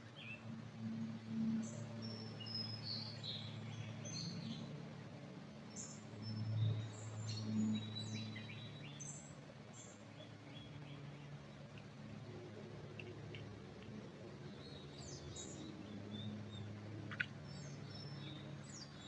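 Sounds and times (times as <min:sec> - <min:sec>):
small birds chirping: 0:01.6 - 0:04.7, 0:05.7 - 0:12.3, 0:12.9 - 0:19.0.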